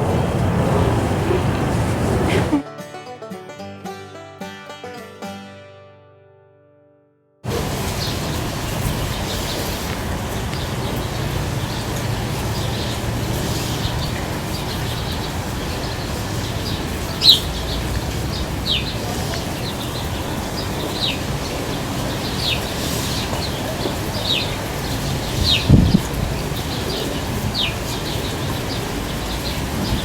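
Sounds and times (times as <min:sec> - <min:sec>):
steady low rumble: 0:00.0 - 0:02.6
bird chirps: 0:16.6 - 0:19.0.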